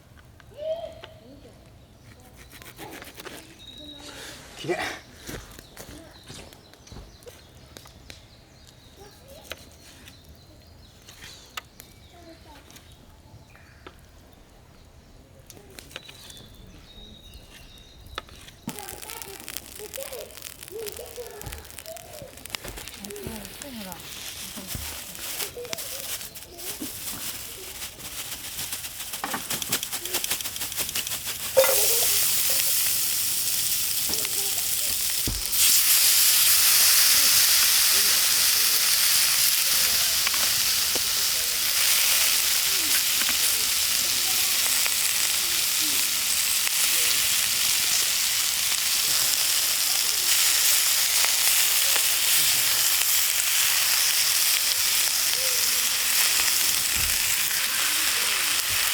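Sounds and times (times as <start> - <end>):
light crackles and clicks: 17.4 - 26.2, 38.0 - 49.6
steak sizzling in a pan: 18.6 - 58.9.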